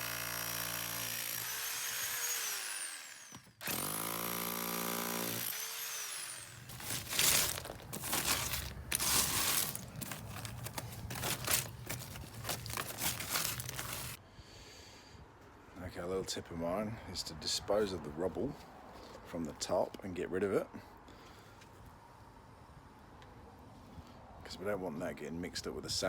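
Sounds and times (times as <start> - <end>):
jackhammer hammering: 0.0 - 14.2.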